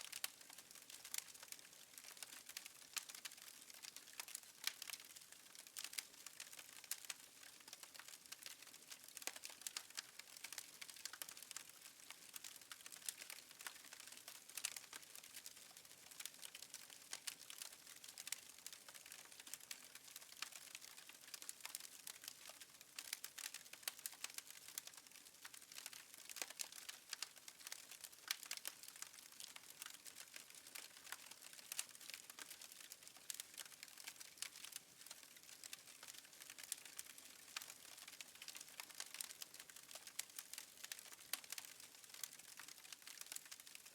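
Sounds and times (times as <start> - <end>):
wood fire crackling: 0.1 - 43.9.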